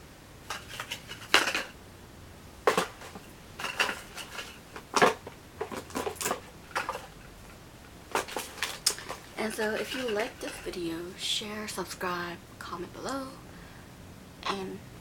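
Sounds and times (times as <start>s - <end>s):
jars and packages clinking: 0.5s - 1.8s, 2.7s - 7.2s, 8.1s - 10.8s.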